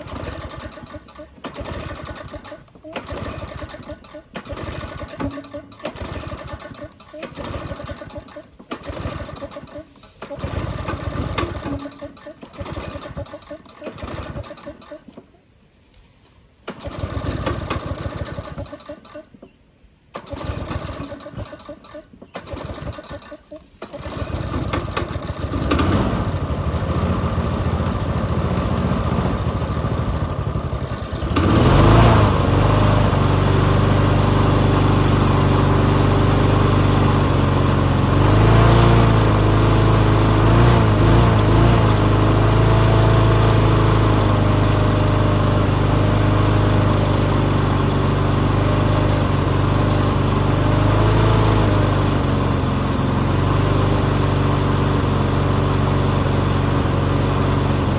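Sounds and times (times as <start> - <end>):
small lawn mower engine running: 0.0 - 15.4, 16.5 - 57.9.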